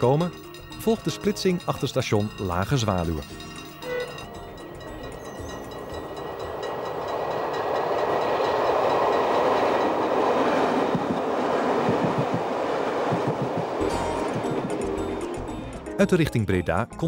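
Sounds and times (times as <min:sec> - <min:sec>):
train passing at speed: 0:03.0 - 0:16.0
wheels thumping over rail joints: 0:06.3 - 0:15.2.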